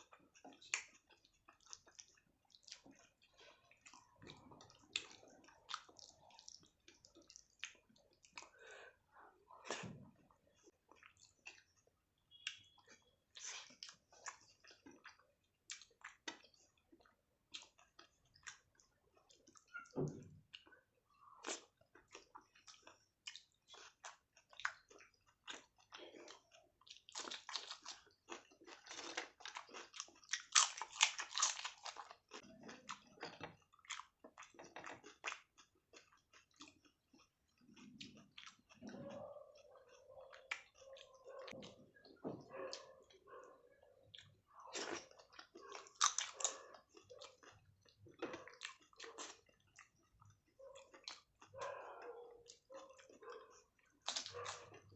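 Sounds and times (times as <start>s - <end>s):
person chewing food: 0.0s - 54.9s
crunchy biting: 27.1s - 32.2s.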